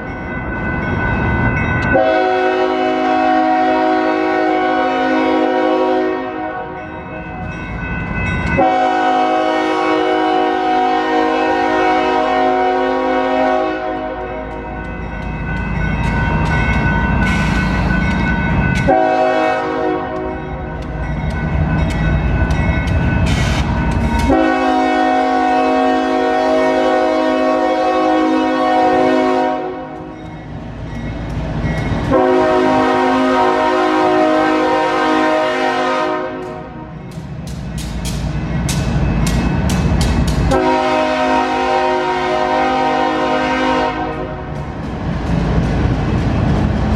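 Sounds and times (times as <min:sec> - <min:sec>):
train rumbling: 0:00.0 - 0:46.9
locomotive air horn: 0:01.9 - 0:06.8, 0:08.6 - 0:14.4, 0:18.9 - 0:20.4, 0:24.2 - 0:30.0, 0:32.1 - 0:36.9, 0:40.5 - 0:44.4.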